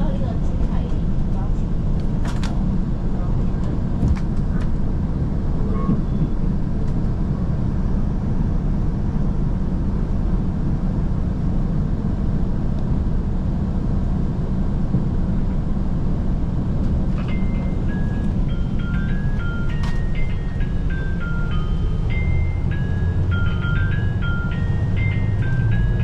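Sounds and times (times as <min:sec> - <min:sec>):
diesel train rumbling: 0:00.0 - 0:26.0
chime melody: 0:17.3 - 0:26.0.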